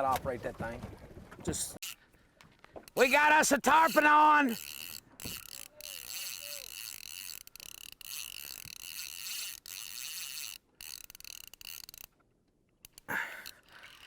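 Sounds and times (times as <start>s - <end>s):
fishing reel drag buzzing: 1.8s - 2.1s, 2.9s - 12.1s, 12.9s - 14.0s.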